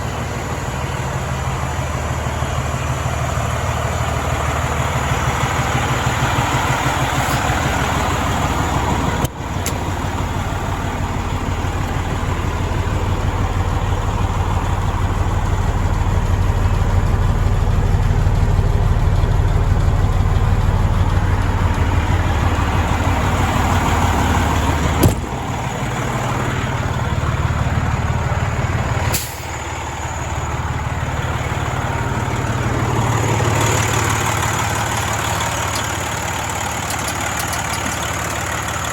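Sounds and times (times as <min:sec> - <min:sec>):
truck diesel engine running: 0:00.0 - 0:38.9.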